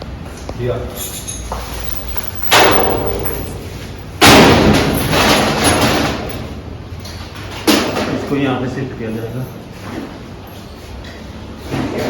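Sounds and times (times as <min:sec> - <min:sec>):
sheet metal ductwork banging: 0:01.8 - 0:06.8.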